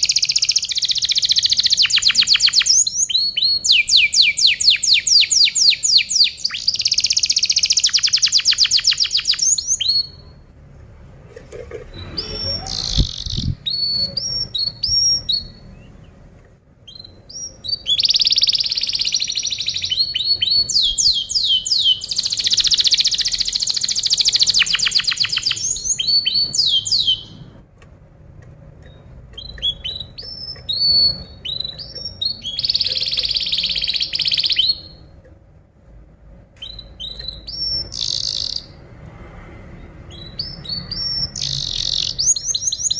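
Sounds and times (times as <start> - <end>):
canary chirps: 0.0 - 10.7, 11.8 - 27.6, 28.6 - 35.2, 36.4 - 39.0, 39.7 - 42.9
canary trilling song: 0.0 - 10.7, 11.8 - 27.8, 28.6 - 35.3, 36.0 - 39.0, 39.6 - 42.9.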